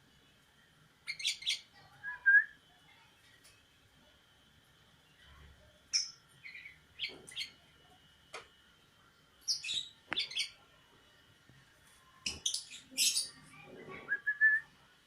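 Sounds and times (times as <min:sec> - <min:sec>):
bird chirping: 0:01.0 - 0:01.7, 0:05.9 - 0:07.6, 0:09.4 - 0:10.6, 0:12.2 - 0:14.6.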